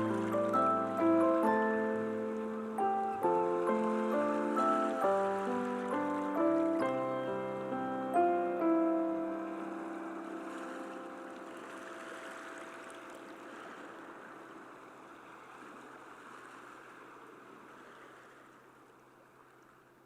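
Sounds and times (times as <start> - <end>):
music held notes: 0.0 - 13.3
sea waves washing on shore: 0.0 - 20.0.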